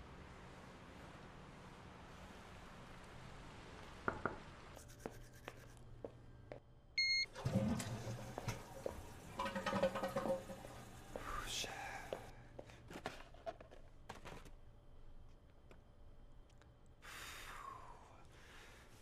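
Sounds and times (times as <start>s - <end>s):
electronic beep: 7.0s - 7.3s.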